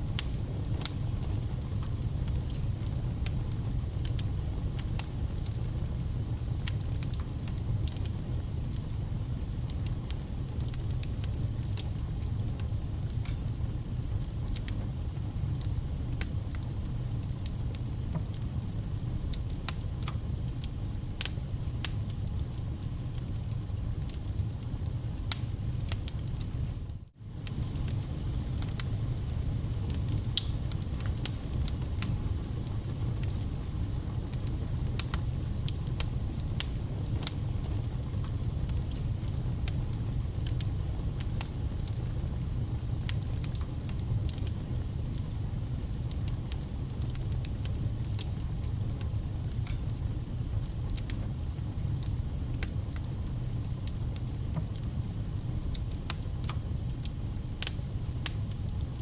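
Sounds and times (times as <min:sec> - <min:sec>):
burning logs crackling and popping: 0:00.0 - 0:59.0
low rumble of flames: 0:00.0 - 0:59.0.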